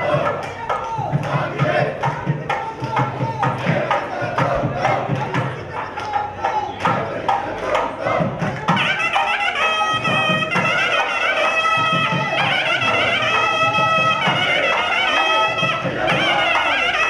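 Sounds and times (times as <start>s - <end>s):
steady drum beats: 0.0s - 17.0s
reed instrument melody: 8.7s - 17.0s.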